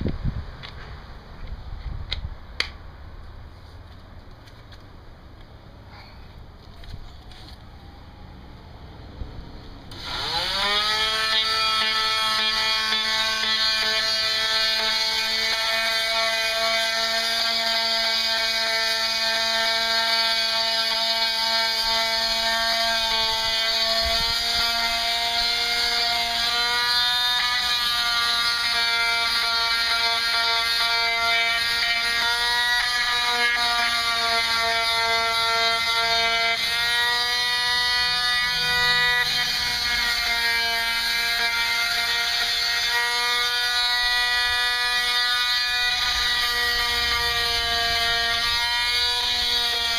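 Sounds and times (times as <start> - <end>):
electric sander buzzing on wood: 9.9 - 49.9.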